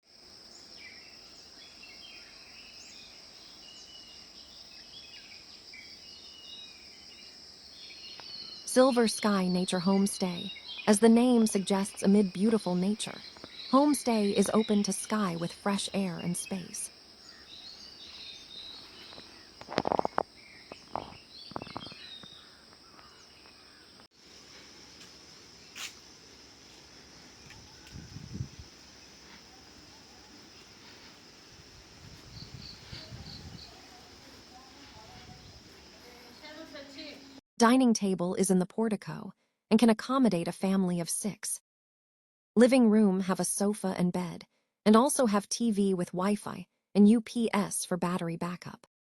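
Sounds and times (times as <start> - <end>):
crickets and insects buzzing: 0.1 - 37.4
birds chirping: 0.5 - 37.4.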